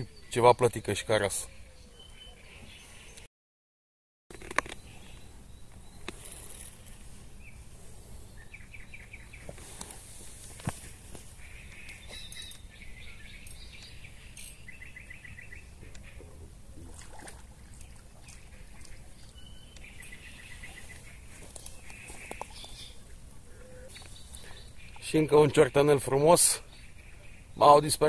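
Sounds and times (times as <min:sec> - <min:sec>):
birds calling in rapid trills: 0:11.2 - 0:16.3, 0:17.6 - 0:28.0.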